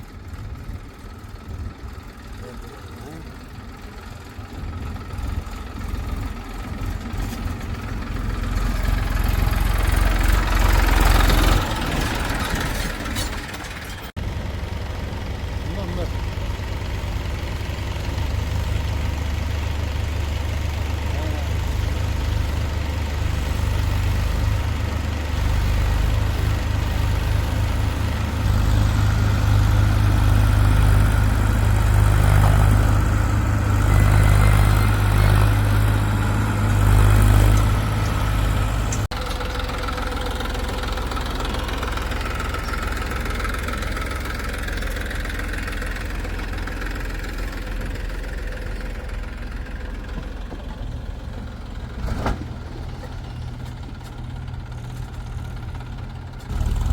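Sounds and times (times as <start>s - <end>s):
heavy machinery diesel engine: 0.0s - 56.9s.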